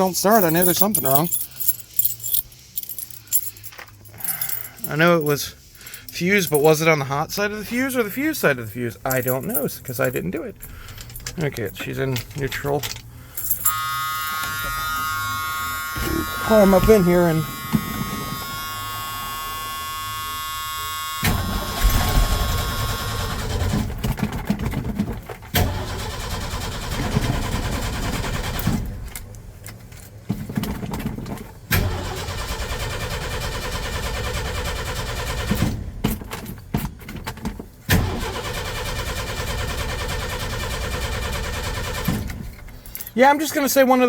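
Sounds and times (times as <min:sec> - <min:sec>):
electrical buzz: 0:13.6 - 0:23.0
engine cranking with starter: 0:20.3 - 0:24.3, 0:25.5 - 0:29.2, 0:31.7 - 0:36.2, 0:37.9 - 0:42.9.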